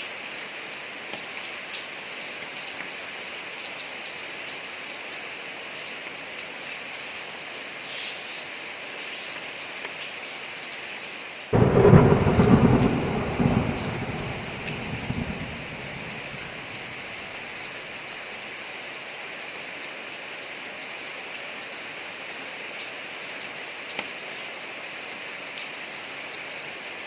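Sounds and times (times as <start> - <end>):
rain falling on street: 0.0 - 27.0
loud thunder clap: 11.6 - 17.6.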